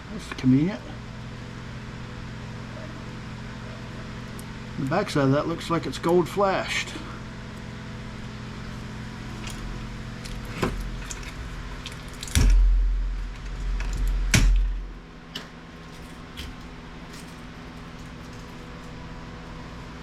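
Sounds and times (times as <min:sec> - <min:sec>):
steady low hum: 0:00.0 - 0:20.0
heavy knock with a thud: 0:12.3 - 0:15.0.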